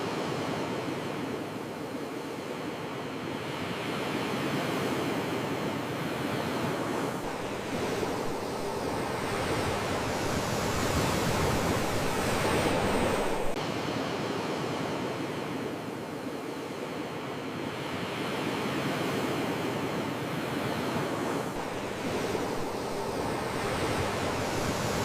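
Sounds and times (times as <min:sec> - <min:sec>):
sea waves washing onto shore: 0:04.8 - 0:13.6, 0:19.2 - 0:25.0.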